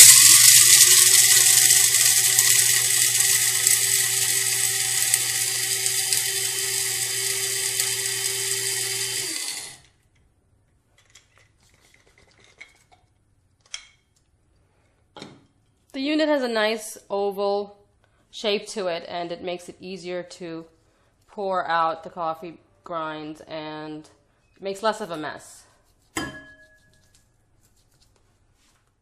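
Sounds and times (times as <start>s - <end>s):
coffee beans rattling: 0.0s - 9.5s
coffee grinder motor whine: 0.0s - 9.9s.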